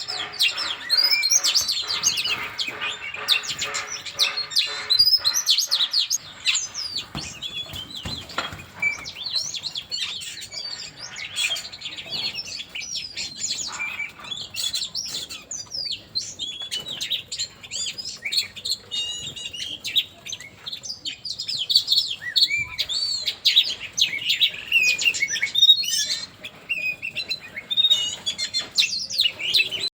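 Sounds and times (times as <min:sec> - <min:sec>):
songbirds singing: 0:00.0 - 0:29.9.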